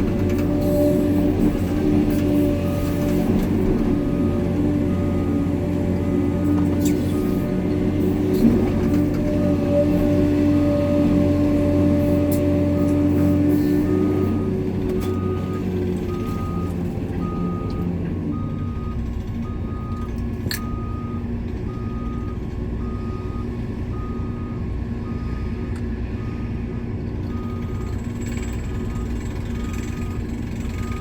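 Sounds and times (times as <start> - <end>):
diesel engine running: 0.0 - 31.0
reversing alarm beeping: 11.6 - 26.6, 27.3 - 31.0.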